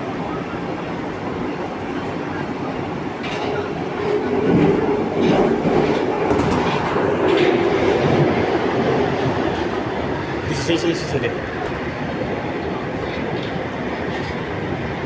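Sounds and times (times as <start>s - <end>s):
rumble of wheels on rail: 0.0s - 15.0s
clickety-clack of wheels: 3.2s - 9.9s, 12.9s - 14.7s.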